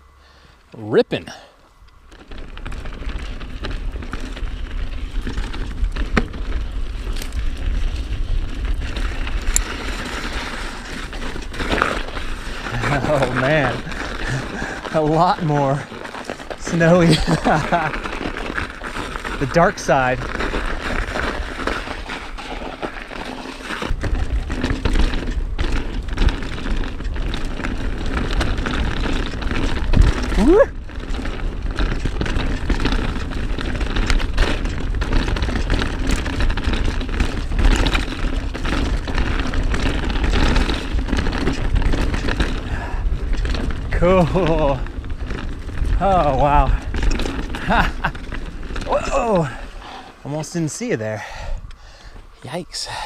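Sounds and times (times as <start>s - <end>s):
bike rattles and clicks: 0.3s - 53.0s
tyres rolling over dirt: 0.3s - 53.0s
wind rumble on microphone: 2.2s - 14.9s, 23.8s - 49.8s.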